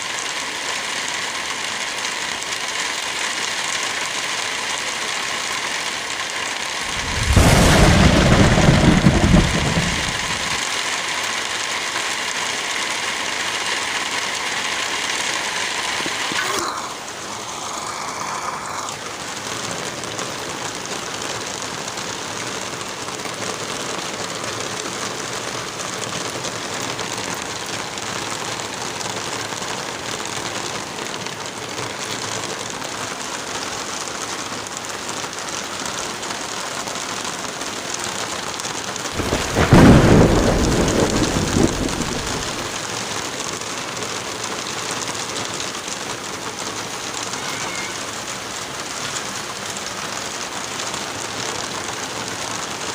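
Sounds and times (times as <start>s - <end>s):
heavy rain: 0.0s - 52.9s
thunder clap rumbling: 6.9s - 10.6s, 39.2s - 42.8s.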